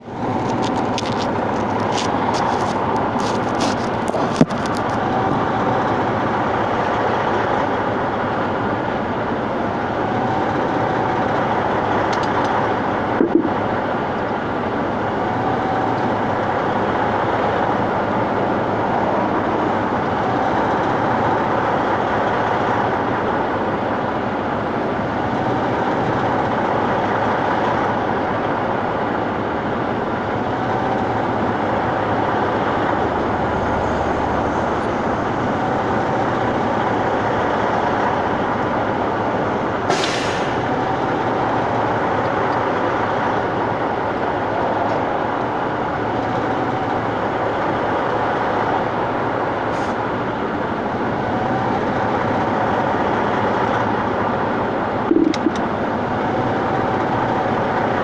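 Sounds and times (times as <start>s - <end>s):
truck road and tyre noise: 0.0s - 58.0s
clicks: 55.1s - 55.7s.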